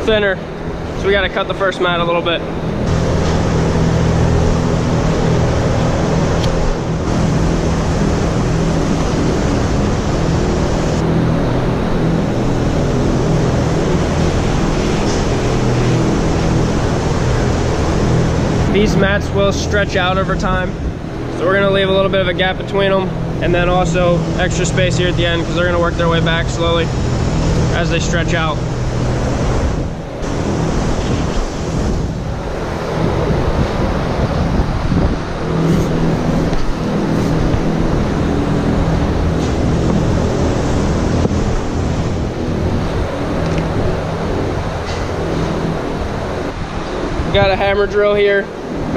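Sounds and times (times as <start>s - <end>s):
machine droning hum: 0.0s - 48.9s.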